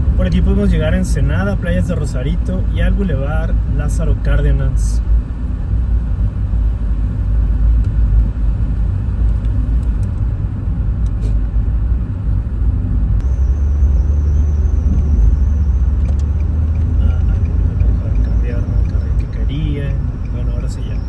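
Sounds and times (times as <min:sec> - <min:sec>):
car engine and road noise: 0:00.0 - 0:21.0
thin high whine: 0:13.2 - 0:16.1.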